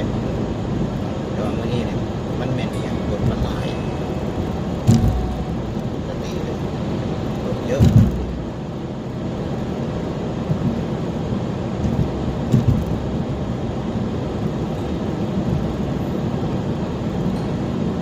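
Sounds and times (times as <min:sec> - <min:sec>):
tyres and engine rumbling: 0:00.0 - 0:18.0
short thump: 0:04.9 - 0:05.5, 0:07.8 - 0:08.5.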